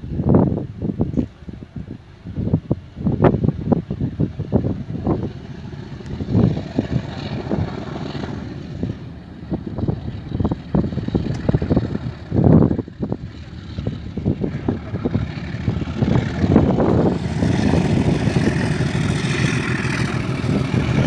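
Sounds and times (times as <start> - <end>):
wind buffeting microphone: 0.0 - 21.0
train rumbling past: 4.2 - 21.0.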